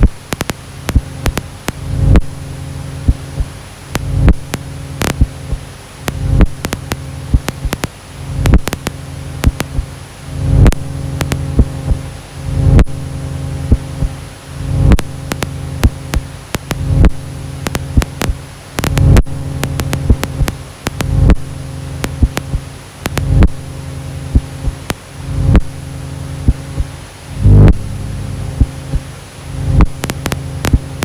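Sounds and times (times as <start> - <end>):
sharp clicks and crackles: 0.0 - 2.5, 3.9 - 9.9, 10.6 - 11.8, 14.9 - 23.7, 24.6 - 25.7, 29.8 - 31.0
faint high whine: 0.0 - 31.0
low droning hum: 0.0 - 31.0.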